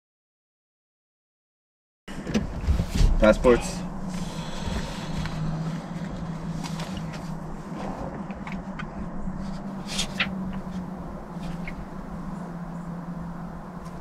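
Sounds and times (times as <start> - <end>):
car engine idling: 2.9 - 14.0.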